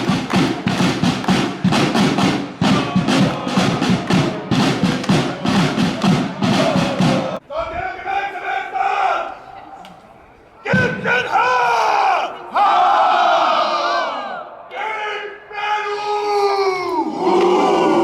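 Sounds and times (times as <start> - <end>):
steady drum beat: 0.0 - 7.4
crowd chanting: 0.0 - 18.0
crowd shouting: 0.0 - 18.0.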